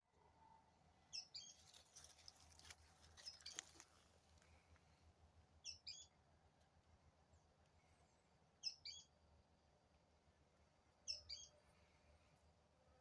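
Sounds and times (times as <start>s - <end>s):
faint bird chirps: 0.4s - 2.3s, 5.6s - 6.2s, 7.3s - 9.2s, 11.0s - 12.5s
faint crackling or rustling: 1.4s - 4.9s.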